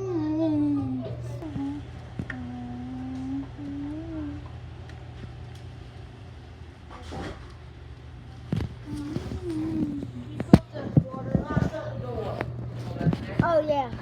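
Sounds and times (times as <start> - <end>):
person humming: 0.0 - 4.6, 8.8 - 10.5
steady low hum: 0.0 - 14.0.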